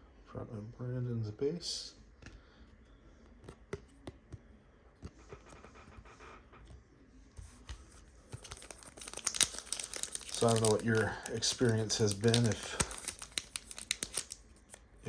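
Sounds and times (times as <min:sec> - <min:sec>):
cards clicking: 0:07.6 - 0:14.8
foil wrapper crinkling and tearing: 0:08.3 - 0:15.0.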